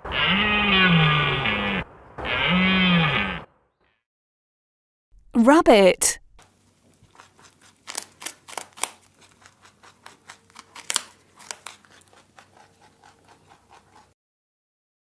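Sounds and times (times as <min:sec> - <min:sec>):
rabbit making crisp clicks: 0:07.1 - 0:14.1.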